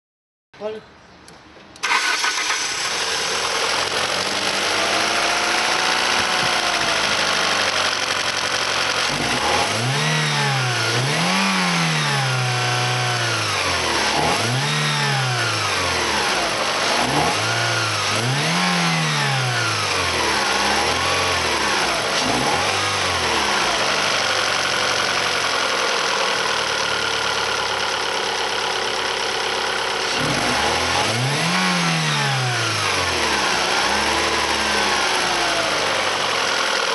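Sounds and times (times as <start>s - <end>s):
car engine idling and revving: 1.8s - 36.9s.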